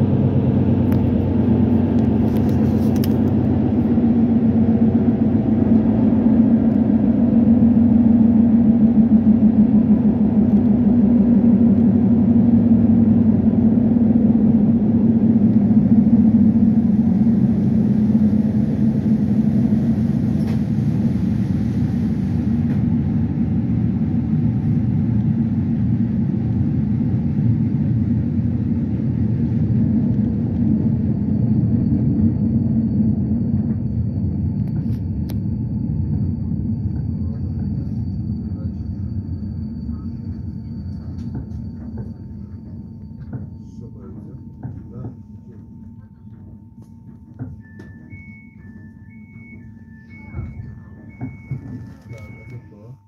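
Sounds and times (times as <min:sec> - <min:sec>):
train rolling on rails: 0:00.0 - 0:53.0
faint high whine: 0:15.1 - 0:53.0.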